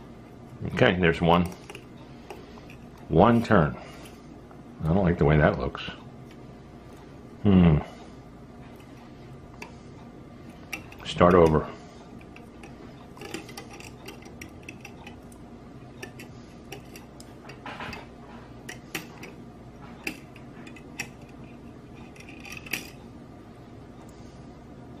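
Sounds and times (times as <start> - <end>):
light rustling of wire: 8.6 - 23.1.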